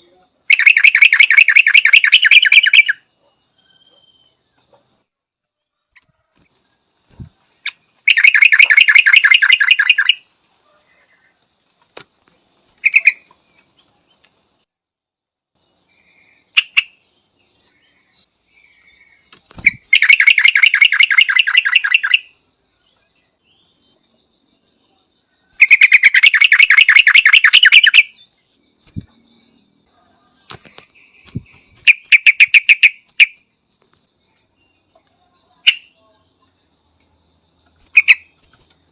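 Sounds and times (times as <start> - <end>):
bird chattering calls: 0.5 - 3.0, 7.6 - 10.2, 12.8 - 13.3, 19.5 - 22.3, 25.6 - 28.2, 31.1 - 33.4.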